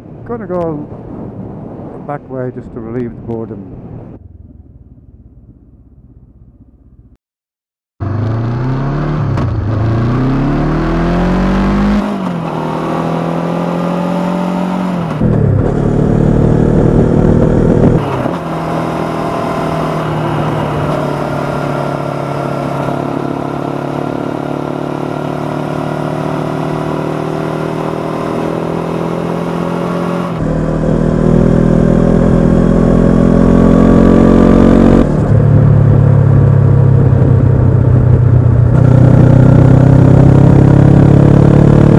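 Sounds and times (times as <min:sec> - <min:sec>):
motorcycle engine shifting gears: 0:08.0 - 0:41.9.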